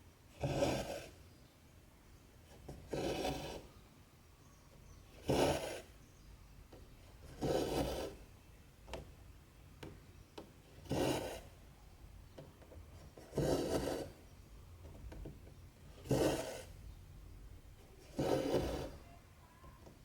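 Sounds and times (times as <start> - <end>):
thread rasping through fabric: 7.2 - 8.2, 10.8 - 11.5, 16.0 - 16.8, 17.8 - 19.8.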